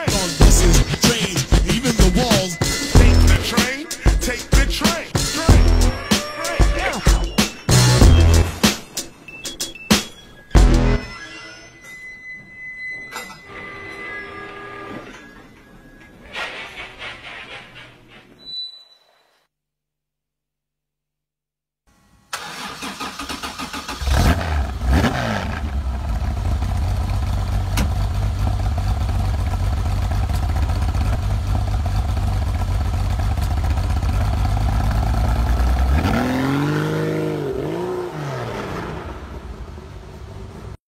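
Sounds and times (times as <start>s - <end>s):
car engine idling and revving: 23.2s - 40.8s.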